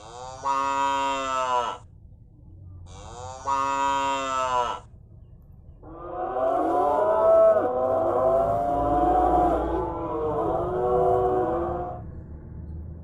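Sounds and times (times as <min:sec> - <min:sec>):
cow mooing: 0:00.0 - 0:01.8, 0:02.9 - 0:04.9, 0:05.8 - 0:12.0.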